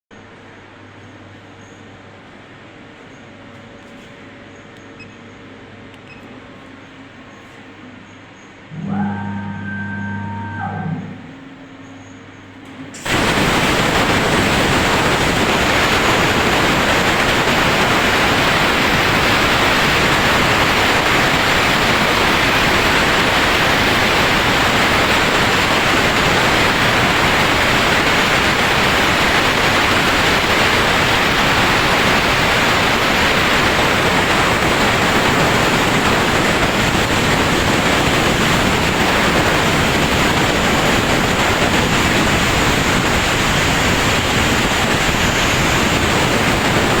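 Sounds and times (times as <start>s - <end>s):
machine hissing steadily: 12.9s - 47.0s.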